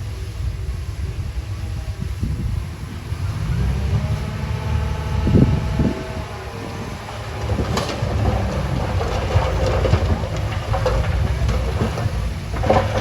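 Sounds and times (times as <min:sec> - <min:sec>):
bulldozer engine rumbling: 0:00.0 - 0:13.0
rattling clatter: 0:03.7 - 0:13.0.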